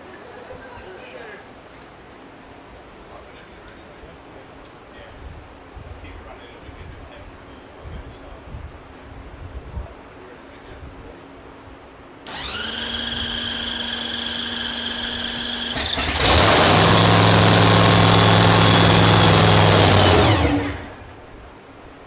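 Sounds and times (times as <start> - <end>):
engine running rough: 12.3 - 21.0
starter motor whine: 12.3 - 21.1.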